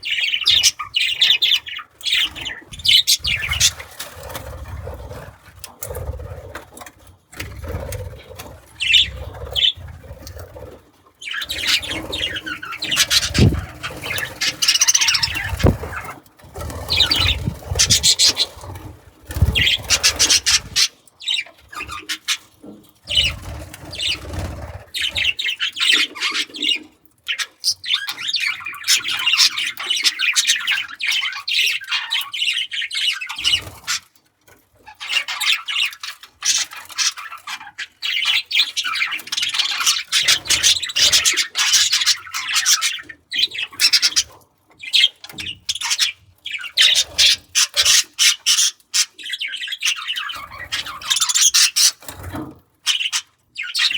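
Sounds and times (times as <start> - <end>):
budgerigars chattering and warbling: 0.0 - 5.3, 7.6 - 10.2, 11.2 - 34.0, 34.9 - 53.9
dull low thumps: 13.4 - 13.7.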